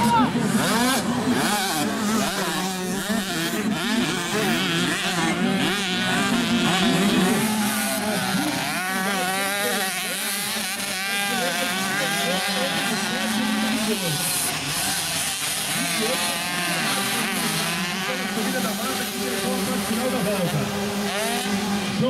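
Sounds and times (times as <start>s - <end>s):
motocross bikes revving: 0.0s - 22.0s.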